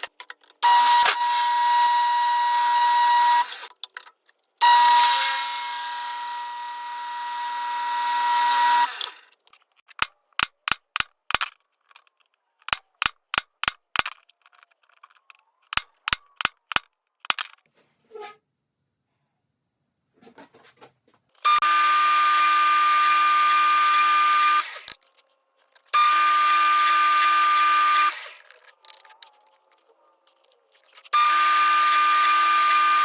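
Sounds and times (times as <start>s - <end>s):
power tool whining: 0.6s - 3.7s, 4.6s - 9.3s, 21.4s - 25.0s, 25.7s - 28.8s, 30.8s - 33.0s.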